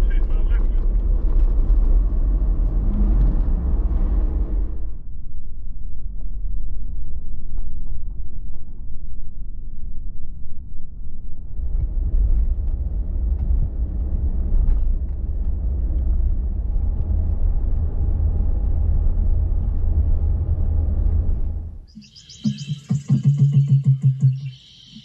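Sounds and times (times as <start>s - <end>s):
rough tyre noise: 0.0s - 5.0s, 11.5s - 21.9s
engine and road rumble: 0.0s - 23.2s.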